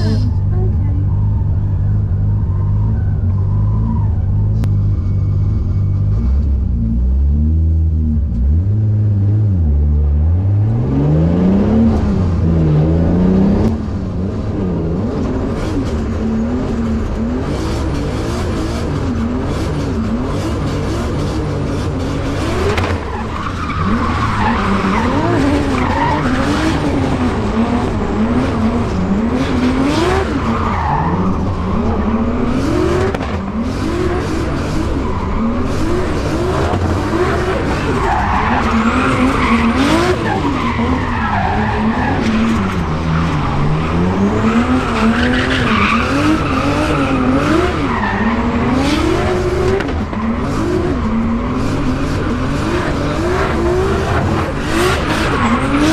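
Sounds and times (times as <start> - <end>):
car engine revving: 0.0 - 55.9
tyres screeching: 22.1 - 49.4.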